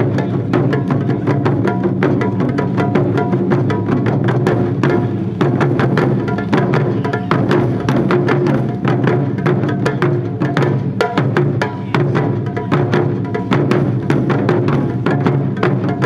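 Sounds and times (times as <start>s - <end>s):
drum ensemble playing: 0.0s - 16.0s.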